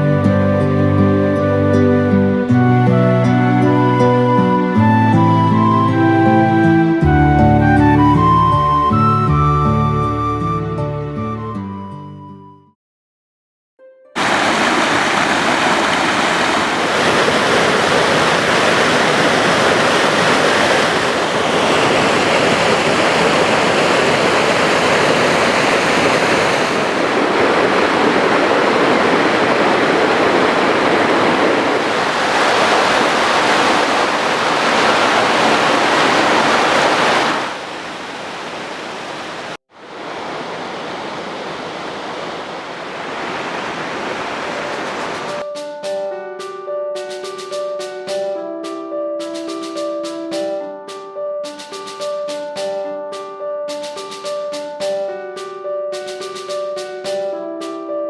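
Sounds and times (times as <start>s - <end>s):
loud rushing noise: 14.2s - 37.7s.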